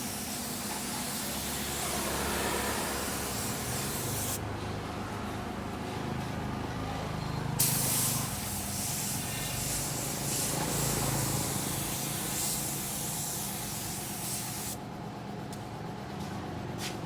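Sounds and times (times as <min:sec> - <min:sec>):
paint spray gun hissing: 0:00.0 - 0:04.4, 0:07.6 - 0:14.8.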